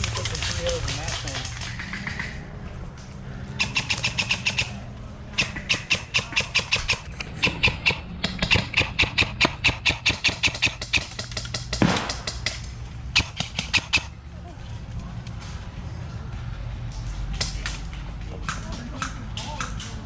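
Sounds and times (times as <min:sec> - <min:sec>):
airsoft gun rapid shots: 0:03.6 - 0:14.1.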